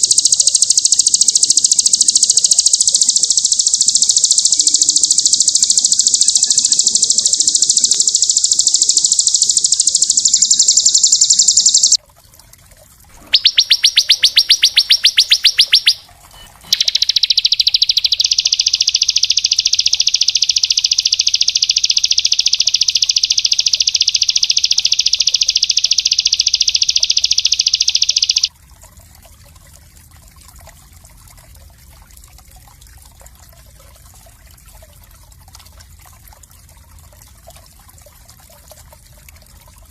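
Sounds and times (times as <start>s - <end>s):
songbird singing fast trills: 0.0s - 12.0s, 13.2s - 28.5s.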